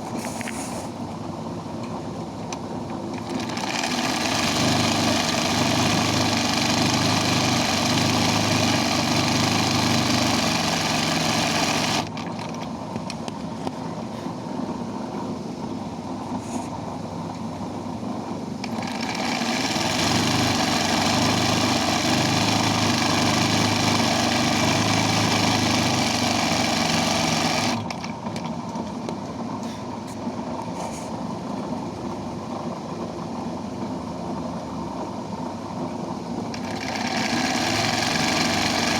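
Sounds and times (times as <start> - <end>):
embroidery machine stitching: 3.1 - 12.4, 18.6 - 28.1, 36.5 - 38.9.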